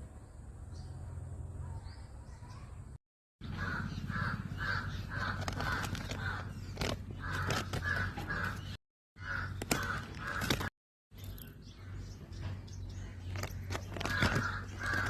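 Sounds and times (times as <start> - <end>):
bird giving harsh calls: 3.4 - 10.7, 13.7 - 15.0.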